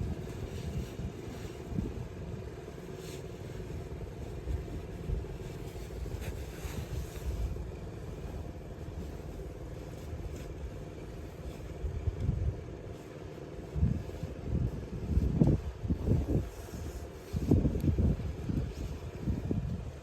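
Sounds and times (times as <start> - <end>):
wind buffeting microphone: 0.0 - 2.6, 13.6 - 20.0.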